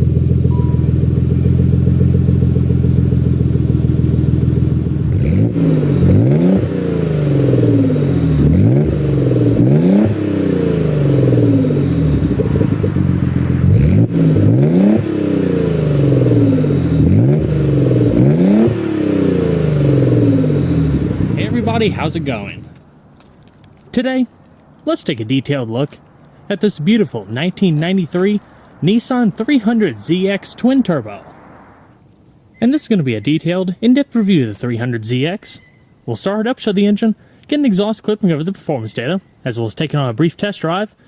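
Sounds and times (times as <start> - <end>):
car engine idling and revving: 0.0 - 24.9, 25.9 - 32.6.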